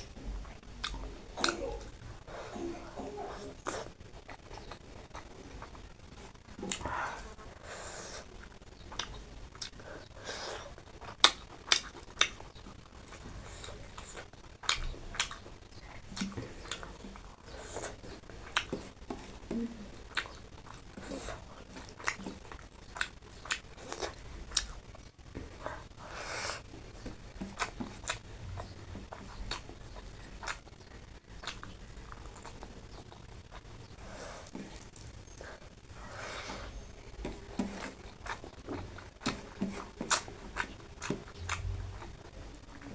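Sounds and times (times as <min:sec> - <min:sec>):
mouth clicks and smacks: 0:00.0 - 0:02.0
person chewing: 0:00.0 - 0:42.9.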